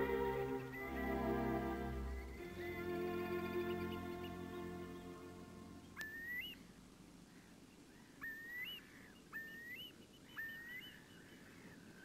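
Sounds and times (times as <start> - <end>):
bird rising calls: 5.8 - 6.6.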